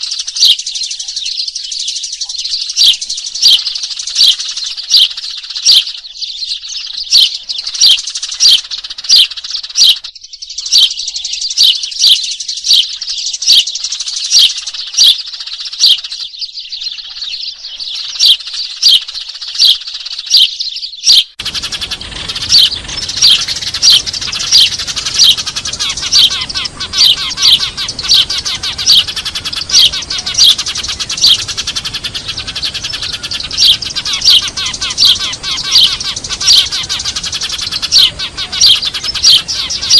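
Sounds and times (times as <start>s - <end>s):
birds chattering: 0.0s - 39.9s
sparrows chirping: 0.0s - 39.9s.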